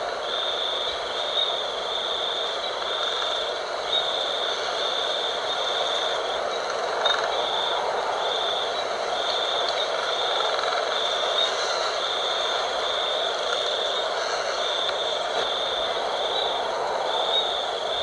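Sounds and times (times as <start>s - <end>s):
wind rushing: 15.2s - 18.0s.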